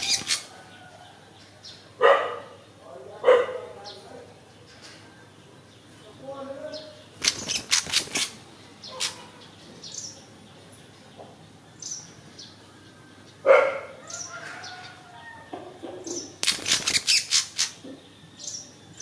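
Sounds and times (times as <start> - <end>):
wings fluttering against slats: 0.0 - 0.5, 7.2 - 9.3, 16.1 - 17.8
bird chirping: 0.0 - 19.0.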